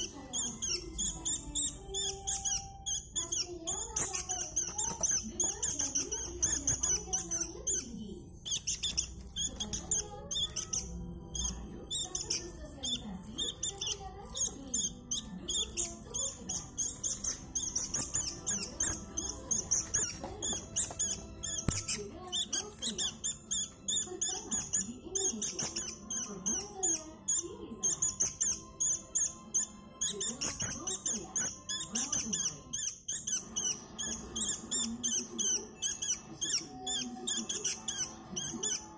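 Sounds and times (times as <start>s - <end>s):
bulbuls chirping: 0.0s - 38.9s.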